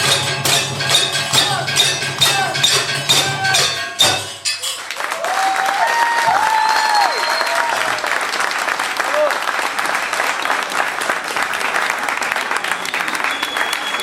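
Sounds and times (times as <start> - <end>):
metallic percussion strikes: 0.0 - 5.2
audience cheering: 4.8 - 10.9, 11.6 - 14.0
audience applause: 4.8 - 14.0.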